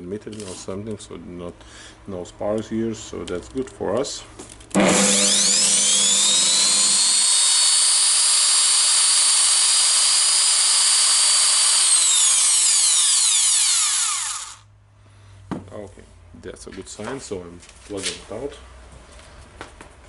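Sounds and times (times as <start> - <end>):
core drill motor whining: 4.8 - 14.6.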